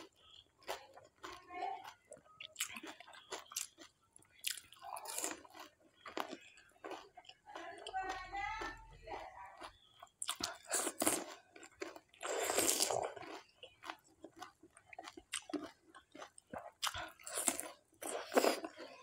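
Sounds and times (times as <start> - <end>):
crunchy chewing: 0.0 - 19.0.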